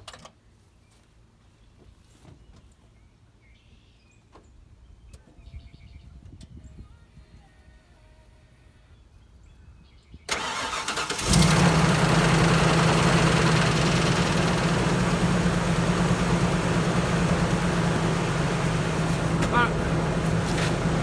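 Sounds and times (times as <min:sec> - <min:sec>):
engine starter cranking: 0:10.3 - 0:21.0
truck engine idling: 0:10.3 - 0:21.0.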